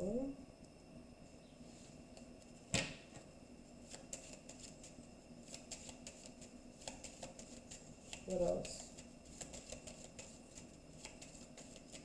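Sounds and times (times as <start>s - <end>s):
cards clicking and flicking: 5.5s - 12.0s.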